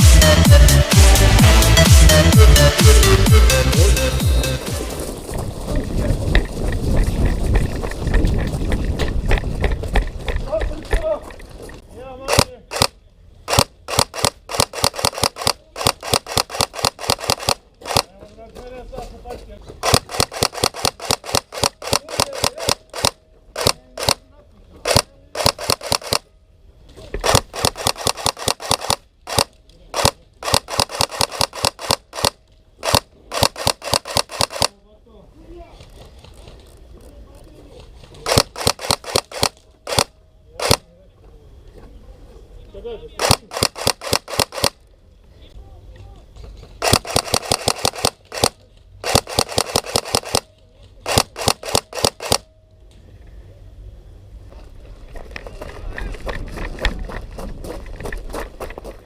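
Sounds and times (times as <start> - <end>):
airsoft guns firing: 12.3 - 18.1, 19.8 - 24.2, 24.8 - 26.3, 27.2 - 34.8, 38.2 - 40.9, 43.2 - 44.8, 46.8 - 52.5.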